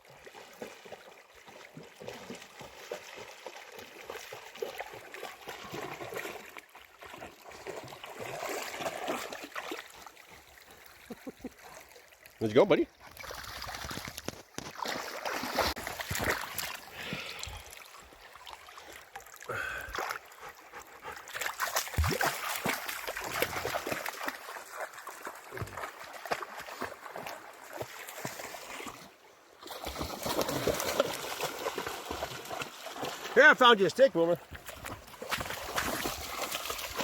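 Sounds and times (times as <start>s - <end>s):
splashes from wading: 0.0s - 12.4s, 13.0s - 37.0s
creek water trickling: 0.0s - 37.0s.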